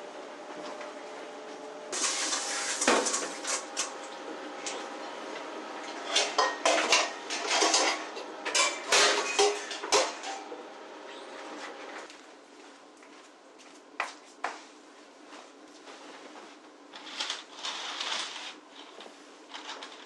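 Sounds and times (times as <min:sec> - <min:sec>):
dishes and cutlery clattering: 0:06.0 - 0:10.5.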